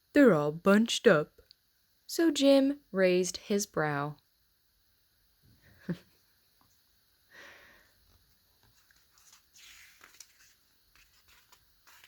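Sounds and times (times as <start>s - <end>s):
faint soft rustles: 8.0s - 12.0s.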